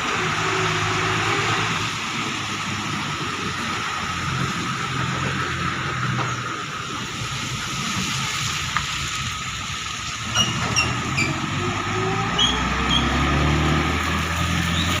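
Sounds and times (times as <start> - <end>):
heavy vehicle engine: 0.0 - 15.0
tyres hissing on wet road: 0.0 - 15.0
short high squeaks: 10.3 - 11.6, 12.3 - 13.2.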